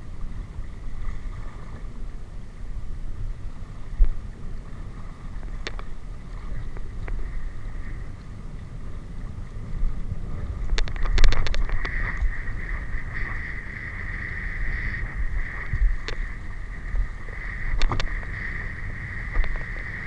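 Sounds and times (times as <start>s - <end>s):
wind rumbling on microphone: 0.0s - 20.0s
steady high hum: 4.6s - 20.0s.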